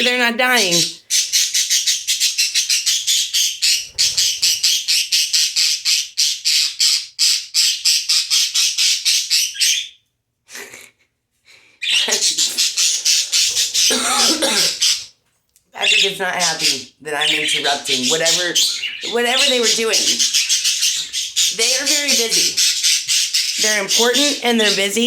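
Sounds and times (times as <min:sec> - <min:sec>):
parakeet squawking: 0:00.0 - 0:10.0, 0:11.8 - 0:15.1, 0:15.8 - 0:25.0.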